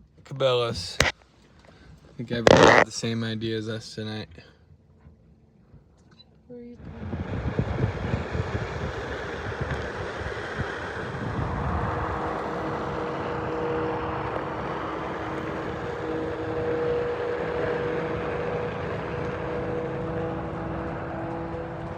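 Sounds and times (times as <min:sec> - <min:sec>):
steady hum: 0:00.8 - 0:01.1, 0:02.4 - 0:02.8
truck engine and road rumble: 0:06.8 - 0:21.9.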